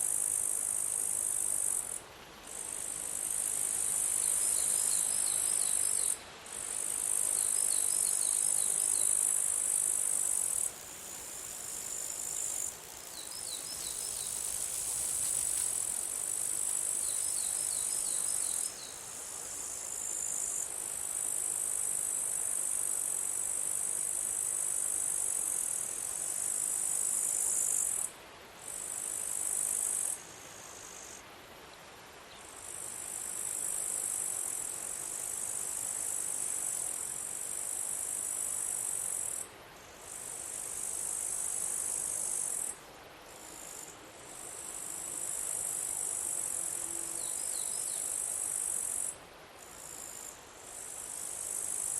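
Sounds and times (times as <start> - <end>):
insect buzzing: 2.8 - 20.6, 45.2 - 49.1.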